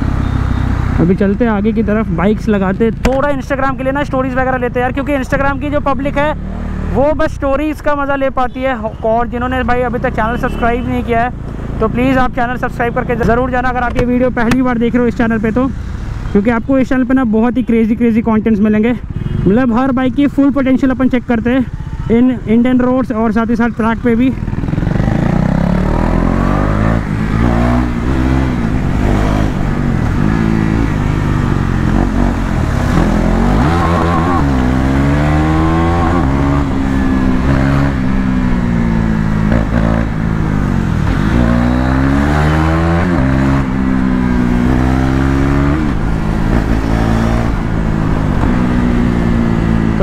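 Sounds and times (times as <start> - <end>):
motorcycle engine accelerating: 24.0 - 50.0.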